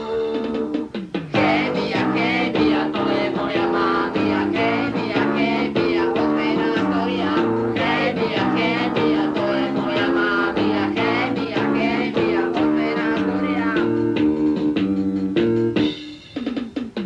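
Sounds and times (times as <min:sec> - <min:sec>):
punk rock band playing: 0:00.0 - 0:17.0.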